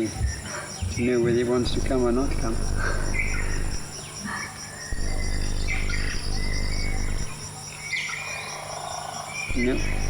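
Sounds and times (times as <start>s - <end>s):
bird chirps: 0.0s - 8.2s
insects trilling: 0.0s - 10.0s
low steady hum: 1.7s - 4.0s, 5.0s - 7.5s, 9.5s - 10.0s.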